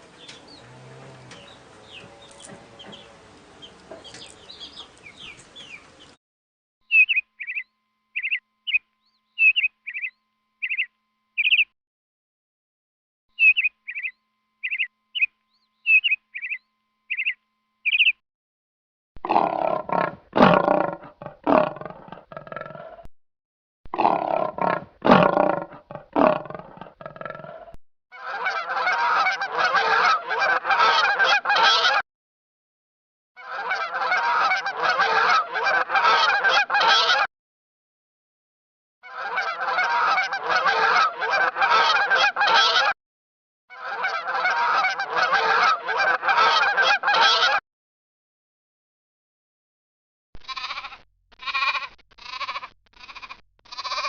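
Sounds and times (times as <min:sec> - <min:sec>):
harsh animal calls: 0:00.0 - 0:04.9, 0:19.2 - 0:23.1, 0:24.0 - 0:32.0, 0:50.4 - 0:54.0
bird chirping: 0:00.0 - 0:06.2, 0:06.8 - 0:11.7, 0:13.3 - 0:18.2.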